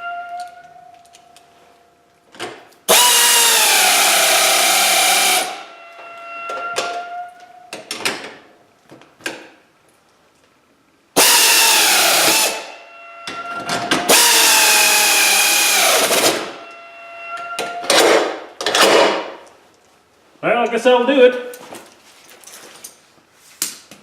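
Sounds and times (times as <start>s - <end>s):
power drill running: 2.9s - 5.6s, 11.2s - 12.7s, 14.1s - 16.3s.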